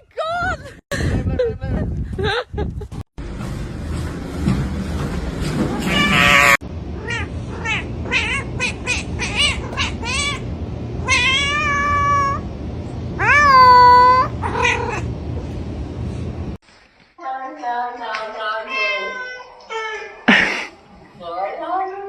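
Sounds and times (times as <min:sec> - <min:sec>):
cat meowing: 0:05.9 - 0:10.4, 0:11.0 - 0:12.4, 0:13.2 - 0:15.1, 0:18.7 - 0:20.2.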